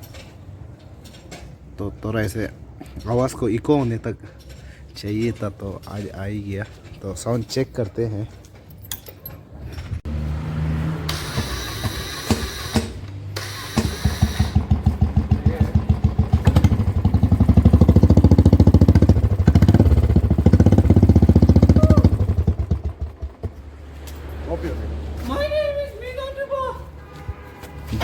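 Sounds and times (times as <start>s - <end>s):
motorcycle engine idling and revving: 9.9s - 25.4s
starter motor cranking: 11.1s - 23.4s.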